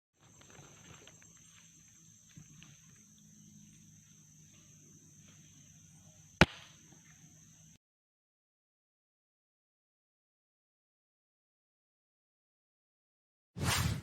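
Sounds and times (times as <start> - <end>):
air rifle shot: 6.4 - 6.8.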